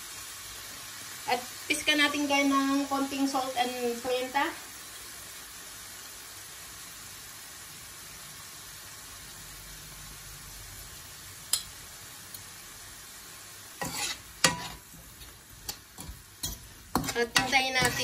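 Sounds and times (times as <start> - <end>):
food sizzling in a frying pan: 0.0 - 18.0
metal spoon scraping a pan: 13.8 - 18.0.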